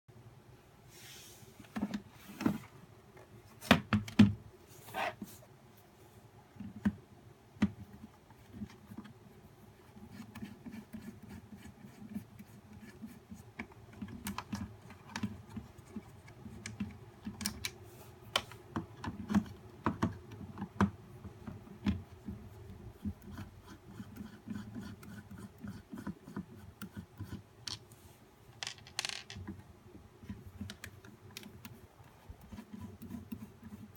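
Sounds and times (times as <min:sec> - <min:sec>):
plastic parts clicking and knocking: 0:27.6 - 0:27.9, 0:28.6 - 0:29.6.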